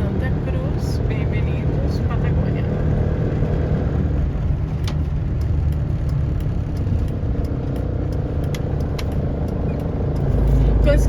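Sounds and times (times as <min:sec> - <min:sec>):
engine and road rumble: 0:00.0 - 0:11.0
faint light ticks: 0:04.8 - 0:10.3.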